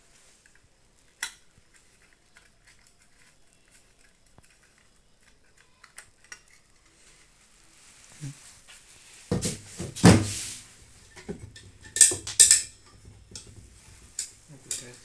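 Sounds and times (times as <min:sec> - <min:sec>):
metallic clicks of small parts: 0:00.4 - 0:06.9, 0:11.6 - 0:15.0.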